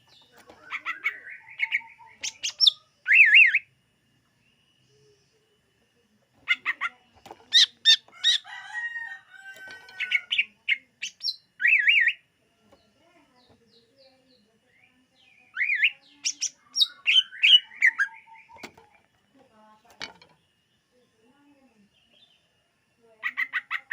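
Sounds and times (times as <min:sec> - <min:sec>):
bird whistling and warbling: 0:00.6 - 0:03.7, 0:10.0 - 0:12.2, 0:15.5 - 0:18.8.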